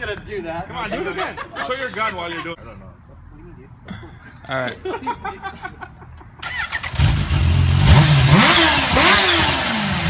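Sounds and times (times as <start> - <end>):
motorcycle engine starting and revving: 6.4 - 10.0.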